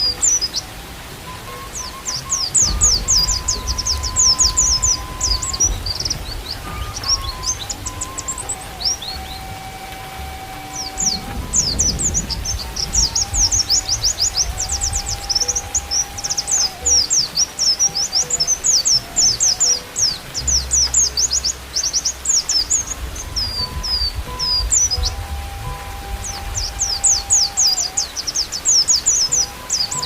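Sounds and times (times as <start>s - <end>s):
bamboo flute melody: 0.0s - 30.0s
birds twittering: 0.0s - 30.0s.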